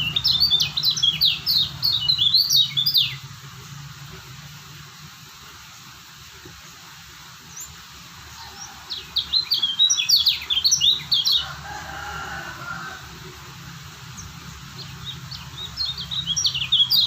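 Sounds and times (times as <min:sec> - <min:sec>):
bird chirping: 0:00.0 - 0:03.8, 0:07.4 - 0:11.6, 0:14.0 - 0:17.0.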